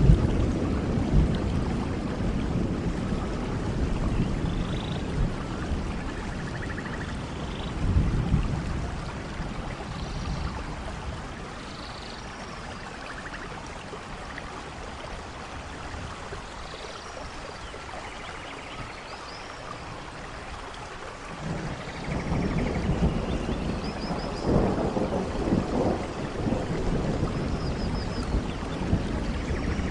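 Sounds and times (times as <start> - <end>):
thunder rumbling: 0.0 - 11.7, 21.3 - 29.9
rain falling: 0.0 - 29.9.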